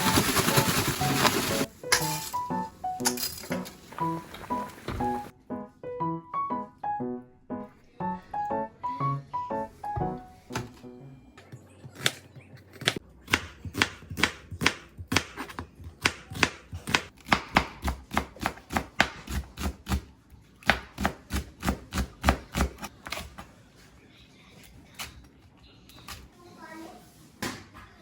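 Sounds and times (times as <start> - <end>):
knife chopping on cutting board: 12.0 - 20.0.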